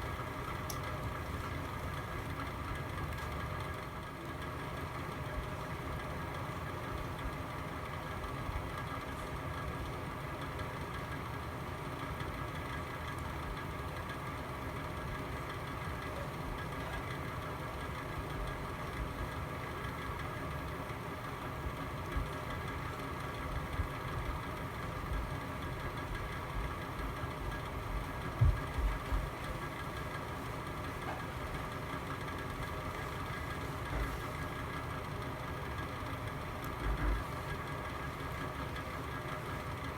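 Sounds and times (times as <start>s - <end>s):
fireplace fire burning: 0.0s - 7.2s, 22.4s - 39.8s.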